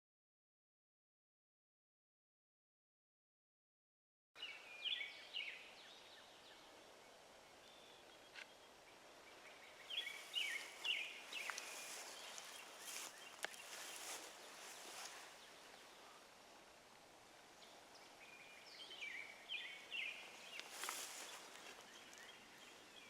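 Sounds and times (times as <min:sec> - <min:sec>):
faint steady hiss: 0:04.4 - 0:23.0
small birds chirping: 0:04.4 - 0:23.0.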